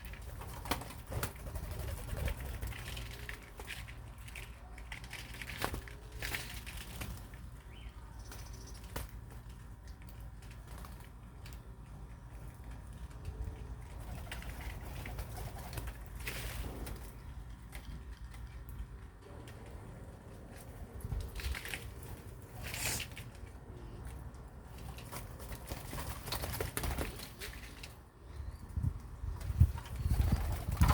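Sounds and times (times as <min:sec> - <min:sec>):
wings fluttering: 0:00.0 - 0:11.7, 0:12.3 - 0:18.8, 0:24.7 - 0:28.0, 0:29.2 - 0:30.9.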